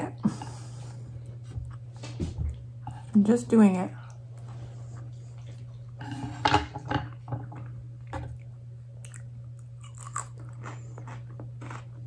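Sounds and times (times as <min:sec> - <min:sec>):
steady low hum: 0:00.0 - 0:12.0
person chewing food: 0:07.6 - 0:12.0.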